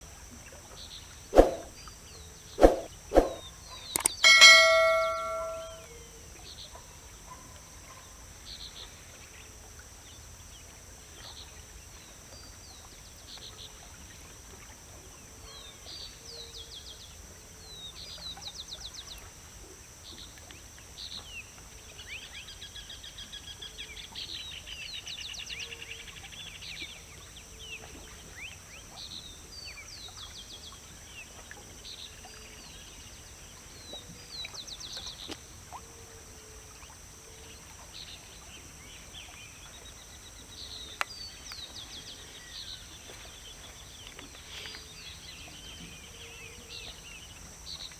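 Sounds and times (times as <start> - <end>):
bell-like ding: 4.0 - 5.8.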